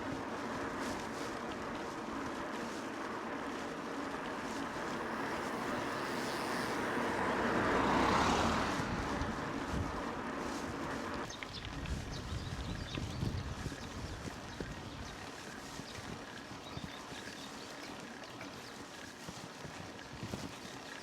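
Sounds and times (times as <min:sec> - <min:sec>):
bike tyres rolling: 0:00.0 - 0:21.0
wind rushing: 0:04.9 - 0:10.8.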